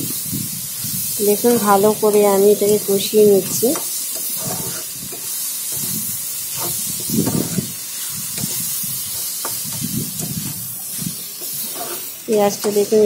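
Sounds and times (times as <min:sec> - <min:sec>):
onions sizzling in hot oil: 0:00.0 - 0:13.0
spatula scraping and stirring: 0:01.4 - 0:13.0.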